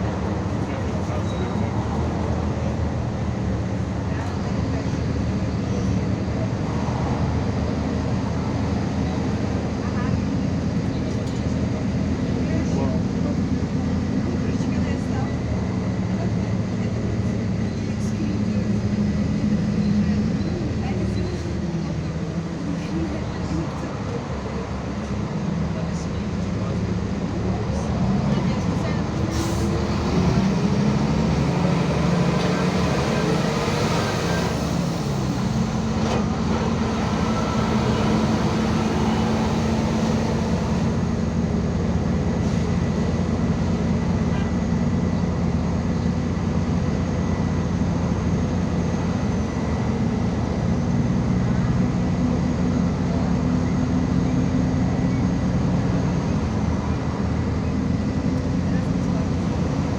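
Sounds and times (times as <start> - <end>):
bus engine and road noise: 0.0 - 59.9.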